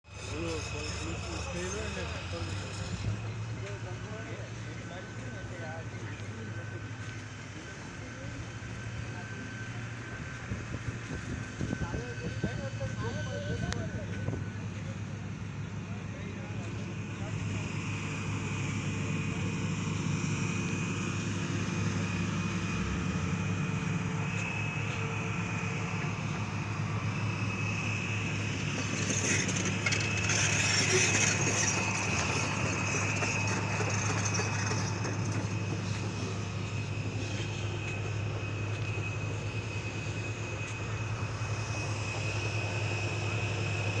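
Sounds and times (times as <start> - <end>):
vehicle engine humming: 0.1 - 44.0
high whine: 20.4 - 44.0.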